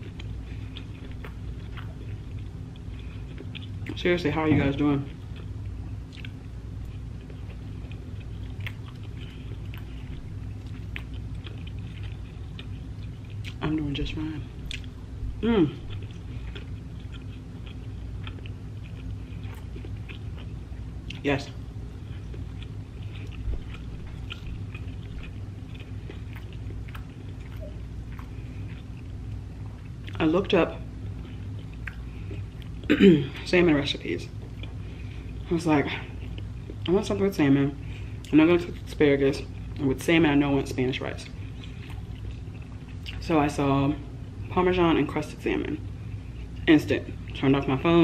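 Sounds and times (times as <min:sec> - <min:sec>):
wet chewing mouth sounds: 0:00.0 - 0:04.0, 0:05.0 - 0:32.9, 0:34.3 - 0:36.9, 0:41.1 - 0:43.2
steady low hum: 0:00.0 - 0:48.0.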